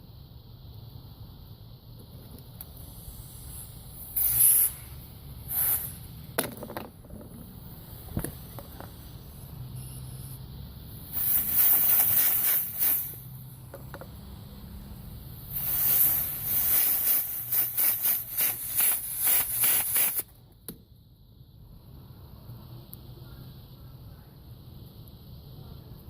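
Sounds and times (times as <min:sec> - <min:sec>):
pressurised air jet hissing: 0:02.6 - 0:06.4, 0:07.4 - 0:20.3.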